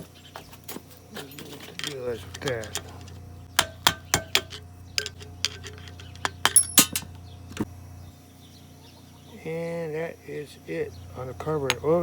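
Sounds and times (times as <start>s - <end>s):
small metal parts clinking: 1.2s - 7.3s.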